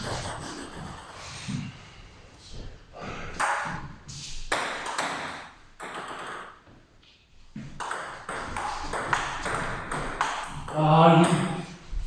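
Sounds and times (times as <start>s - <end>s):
table tennis ball hits: 3.3s - 6.7s, 7.6s - 11.8s.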